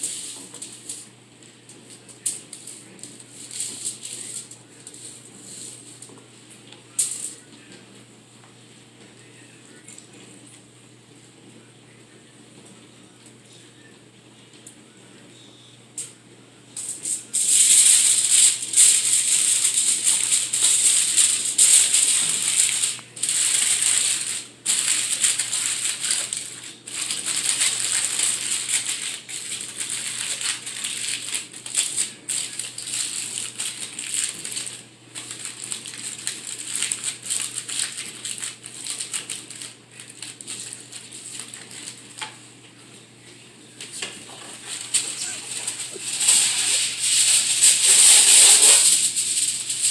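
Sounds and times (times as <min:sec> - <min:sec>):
aluminium foil crinkling: 0:00.0 - 0:06.2, 0:06.9 - 0:07.5, 0:16.8 - 0:42.4, 0:43.8 - 0:49.9.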